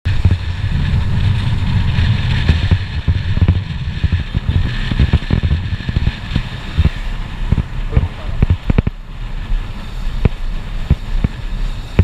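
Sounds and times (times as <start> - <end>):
wind buffeting microphone: 0.0 - 12.0
motorcycle engine running: 0.1 - 9.6.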